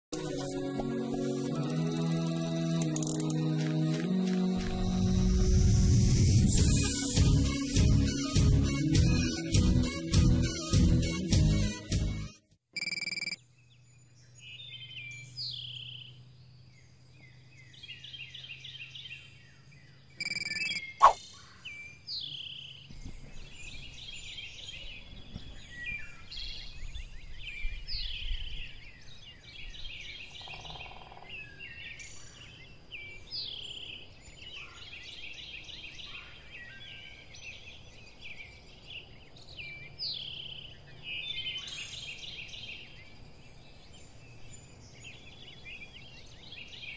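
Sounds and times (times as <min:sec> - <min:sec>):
faint outdoor background: 0:00.1 - 0:46.9
birds singing and chirping: 0:12.9 - 0:46.9
short sharp sound: 0:20.2 - 0:21.2.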